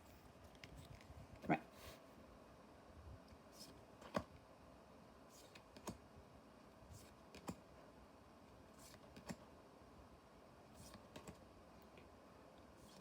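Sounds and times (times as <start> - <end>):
card sliding and tapping: 7.0 - 7.6.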